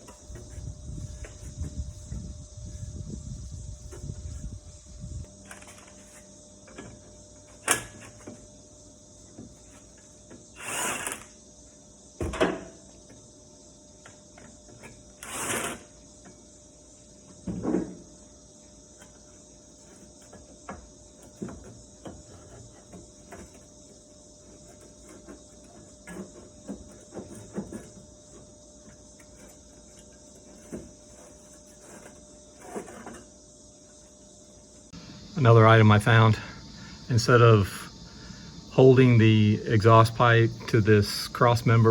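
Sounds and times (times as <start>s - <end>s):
short scraping noises: 15.2s - 15.9s, 30.4s - 33.3s.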